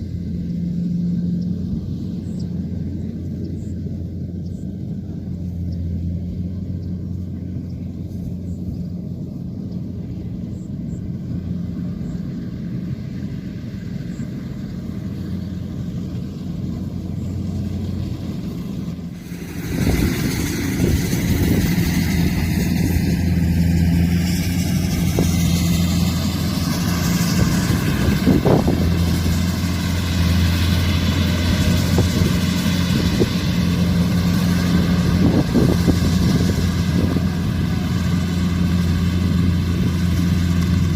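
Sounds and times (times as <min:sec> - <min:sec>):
diesel engine humming: 0:00.0 - 0:40.9
wide rushing noise: 0:11.7 - 0:40.9.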